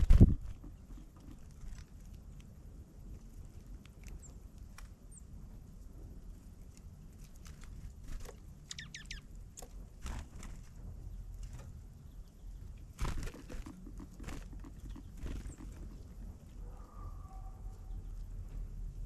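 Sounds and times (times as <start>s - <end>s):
steady low rumble: 0.0s - 19.0s
birds pecking and tapping: 0.1s - 5.0s, 6.6s - 18.7s
high falling bird chirps: 8.6s - 9.3s.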